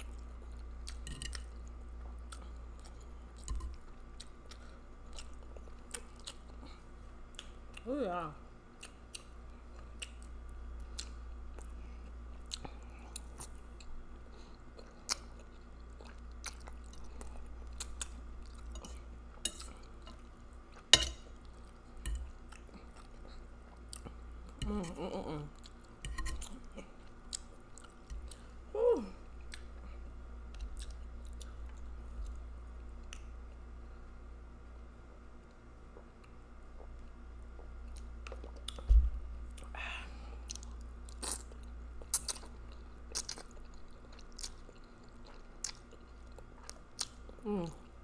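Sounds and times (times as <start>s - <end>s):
steady low hum: 0.0s - 48.0s
wet chewing and smacking: 14.7s - 24.6s, 25.5s - 28.6s, 35.4s - 39.7s, 40.4s - 47.4s
person humming: 24.6s - 25.6s, 28.7s - 29.2s, 47.4s - 47.8s.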